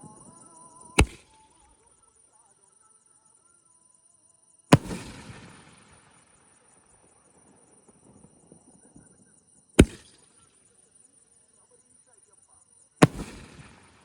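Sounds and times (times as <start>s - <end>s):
loud firework bangs: 1.0s - 1.2s, 4.8s - 6.1s, 9.8s - 10.2s, 13.0s - 14.0s
firework crackle and echo: 4.8s - 8.4s, 9.8s - 10.3s, 13.0s - 14.0s.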